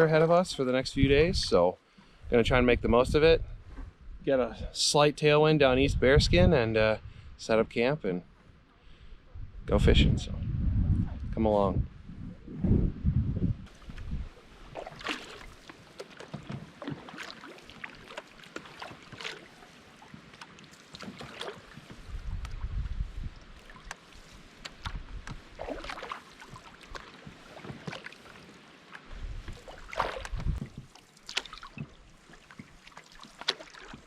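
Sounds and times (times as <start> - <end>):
wind rumble on microphone: 0.0 - 1.6, 2.2 - 4.8, 5.6 - 7.7, 8.5 - 15.0, 21.7 - 27.6, 29.1 - 31.0
canoe paddles in water: 13.7 - 34.0
water splashes and drips: 13.7 - 34.0.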